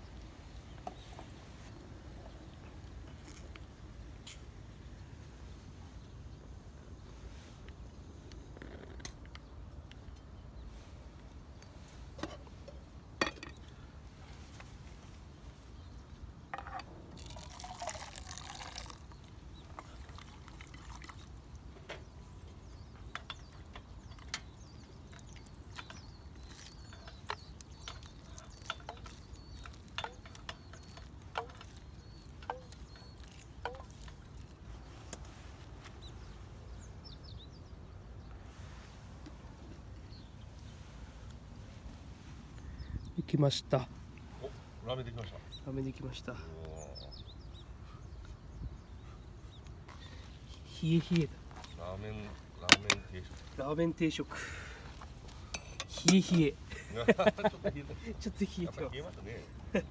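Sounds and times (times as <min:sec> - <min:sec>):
liquid dripping: 0:17.2 - 0:21.6.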